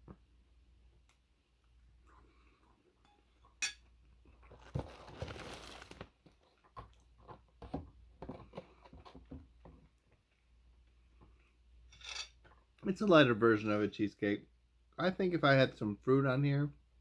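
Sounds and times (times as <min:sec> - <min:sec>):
cutlery clinking on a plate: 0:03.6 - 0:03.8, 0:11.9 - 0:12.4
cutlery scraping: 0:11.9 - 0:12.4.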